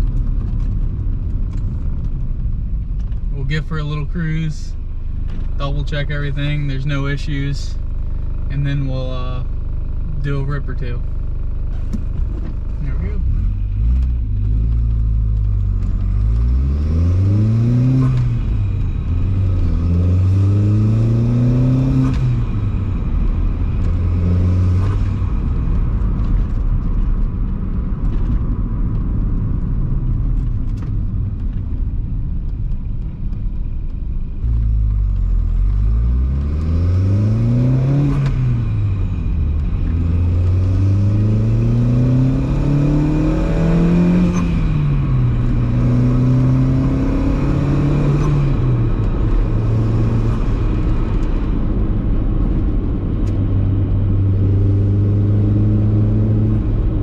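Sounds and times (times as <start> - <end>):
car engine accelerating through gears: 11.6 - 57.0.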